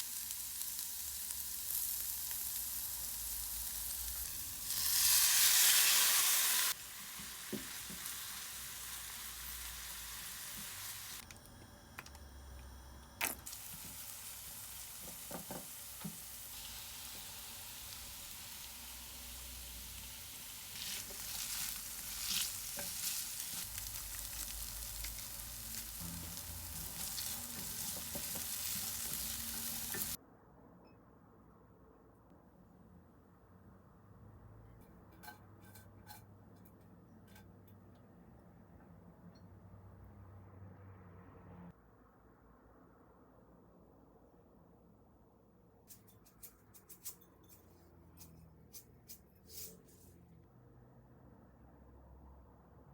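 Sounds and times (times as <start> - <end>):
food sizzling in a frying pan: 0.0 - 11.2, 13.2 - 30.2
utensil clicking and scraping pan: 35.1 - 37.6, 45.9 - 49.8.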